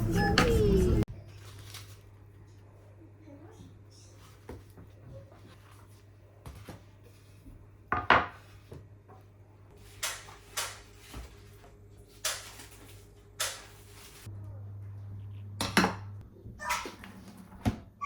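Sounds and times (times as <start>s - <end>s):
kitchen items knocking and clattering: 7.9s - 9.3s.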